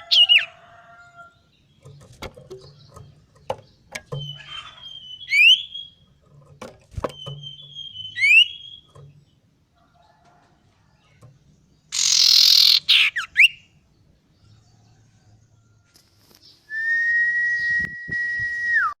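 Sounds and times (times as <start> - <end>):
bird singing whistles: 7.1 - 8.9, 12.0 - 13.6, 16.7 - 19.0.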